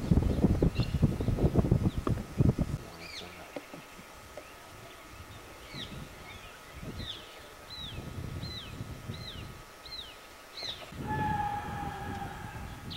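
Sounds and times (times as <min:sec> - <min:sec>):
bird chirping: 0:02.9 - 0:10.9
low background rumble: 0:03.8 - 0:12.9.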